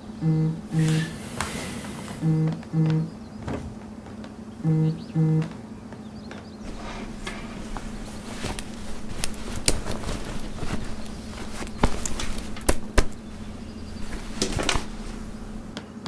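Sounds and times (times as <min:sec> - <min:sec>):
steady low hum: 0:00.0 - 0:03.1, 0:06.7 - 0:15.8
sharp clicks and knocks: 0:06.7 - 0:15.8.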